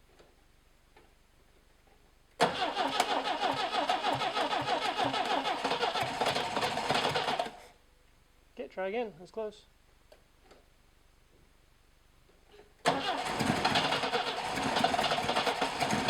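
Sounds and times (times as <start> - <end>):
engine cranking on starter motor: 2.4 - 7.7, 12.8 - 16.0.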